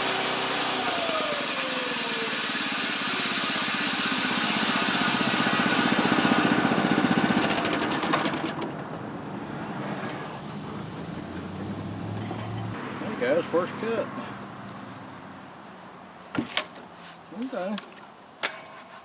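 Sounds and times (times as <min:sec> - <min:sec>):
saw blade cutting log: 0:00.0 - 0:08.6
small gasoline engine running: 0:00.0 - 0:08.7.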